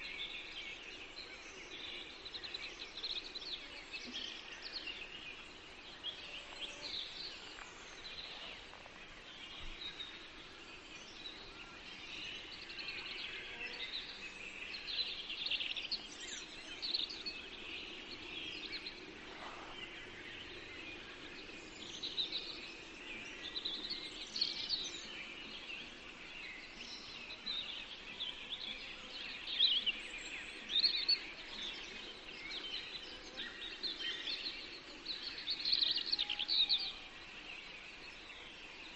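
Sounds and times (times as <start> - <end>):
faint background hiss: 0.0 - 38.9
songbirds chirping: 0.0 - 38.9.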